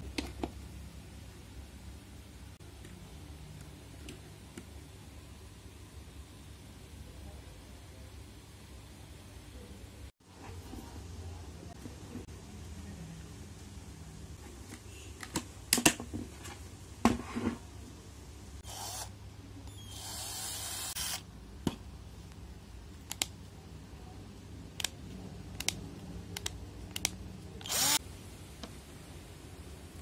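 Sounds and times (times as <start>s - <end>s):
cordless drill bursts: 18.6s - 19.1s, 19.7s - 21.2s, 27.6s - 28.0s.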